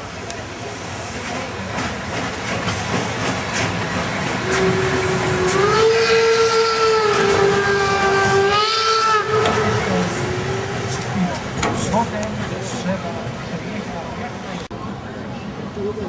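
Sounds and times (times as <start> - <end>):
steam locomotive whistle: 4.4 - 10.2.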